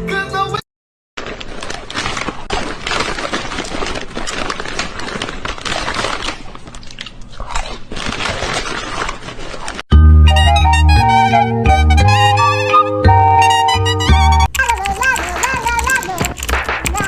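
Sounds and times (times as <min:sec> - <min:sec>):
crunching and crinkling: 0:01.2 - 0:09.9.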